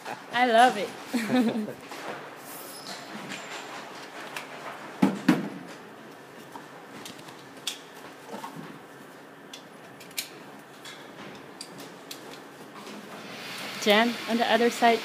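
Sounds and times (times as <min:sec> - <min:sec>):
steady hiss: 0:13.1 - 0:15.0.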